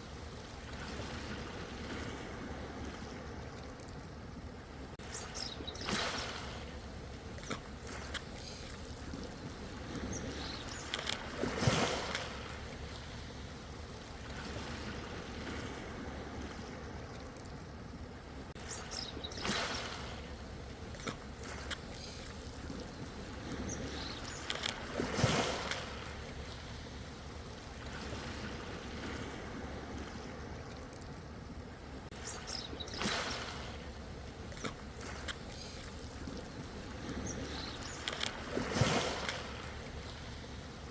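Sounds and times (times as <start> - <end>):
low rumble of surf: 0.0 - 40.9
ocean waves breaking: 0.0 - 40.9.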